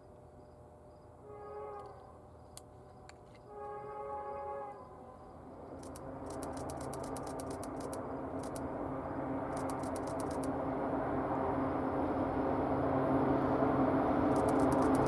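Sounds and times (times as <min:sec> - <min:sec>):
diesel locomotive engine rumble: 0:00.0 - 0:15.0
quick sharp clicks: 0:05.8 - 0:08.7, 0:09.5 - 0:10.6, 0:14.3 - 0:15.0.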